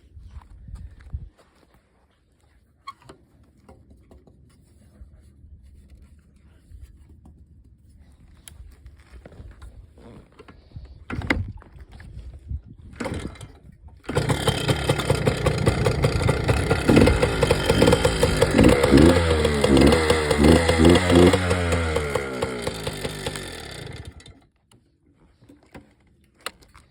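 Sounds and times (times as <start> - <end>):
two-stroke engine revving: 13.0 - 24.4.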